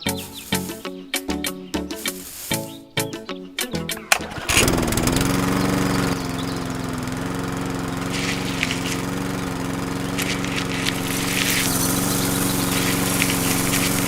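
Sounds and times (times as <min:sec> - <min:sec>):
small motor humming: 0:00.0 - 0:00.8, 0:02.0 - 0:02.7, 0:03.8 - 0:14.0
hissing bursts: 0:00.0 - 0:03.0, 0:07.8 - 0:14.0.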